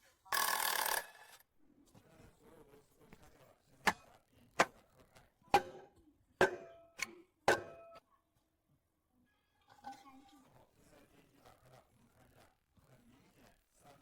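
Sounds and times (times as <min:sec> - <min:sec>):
sharp knocks with ringing tone: 0:05.6 - 0:08.0.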